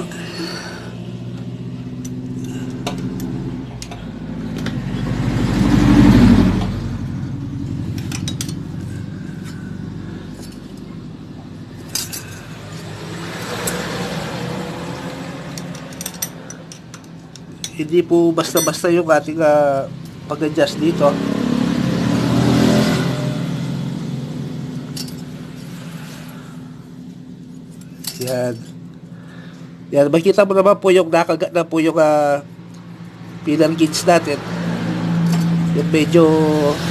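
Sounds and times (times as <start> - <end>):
motor vehicle engine running: 0.0 - 30.4
metallic clicks of hand tools: 2.0 - 4.8, 11.9 - 14.0, 15.4 - 17.8, 25.0 - 25.3.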